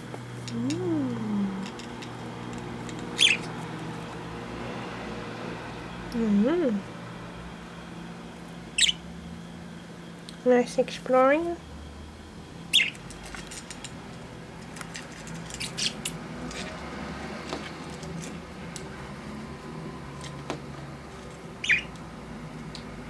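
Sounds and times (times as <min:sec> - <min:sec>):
budgerigars chirping: 0:03.0 - 0:03.6, 0:08.7 - 0:09.1, 0:12.7 - 0:13.0, 0:21.6 - 0:22.0.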